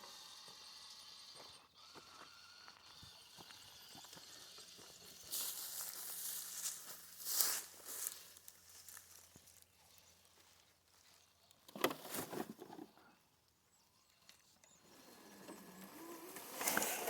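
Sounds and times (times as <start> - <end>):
crunching and scraping on gravel: 3.3 - 9.7.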